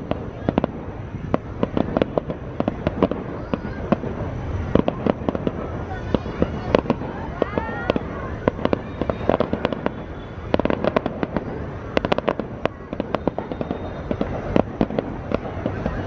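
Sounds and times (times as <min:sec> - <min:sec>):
fireworks bangs and cracks: 0:00.0 - 0:16.0.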